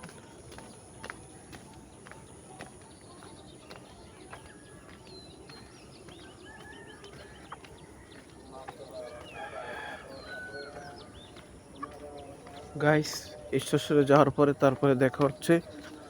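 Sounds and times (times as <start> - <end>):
small birds chirping: 0.0 - 16.0
rooster crowing: 9.0 - 11.1.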